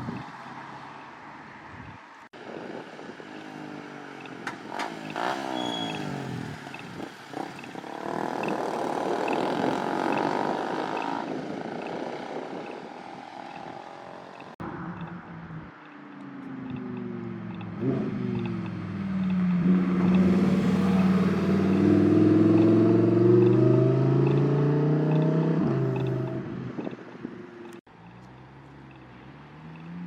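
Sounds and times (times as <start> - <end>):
sports car engine revving: 16.6 - 26.9.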